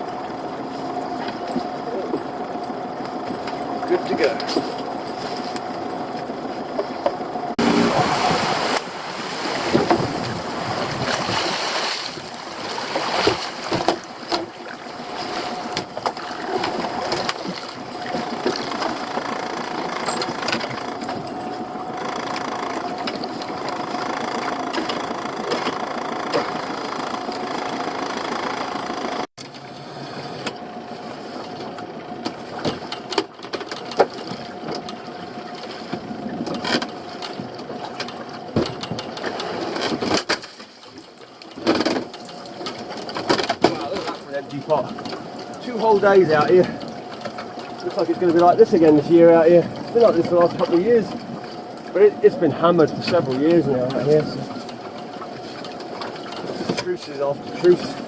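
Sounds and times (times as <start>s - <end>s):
boat engine whining: 0.0s - 58.0s
water noise: 0.0s - 58.0s.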